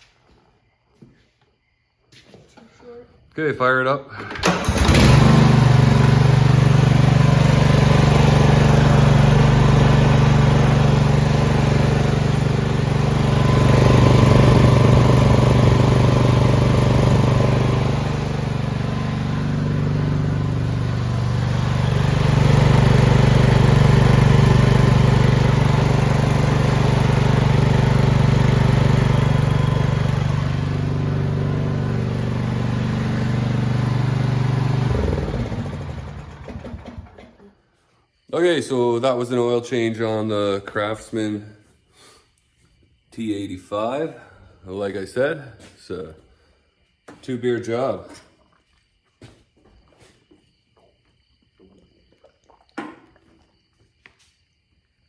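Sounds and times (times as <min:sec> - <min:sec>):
lawn tractor engine running: 0:04.2 - 0:37.4.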